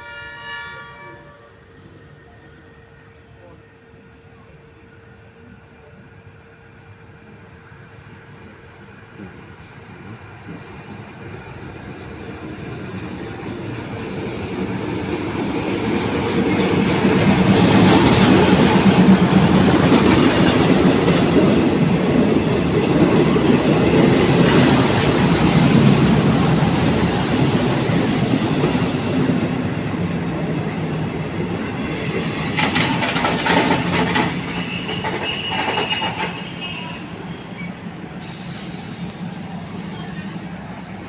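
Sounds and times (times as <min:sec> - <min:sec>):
diesel train rumbling on track: 0:00.0 - 0:41.0
metallic wheel squeals: 0:34.1 - 0:40.7.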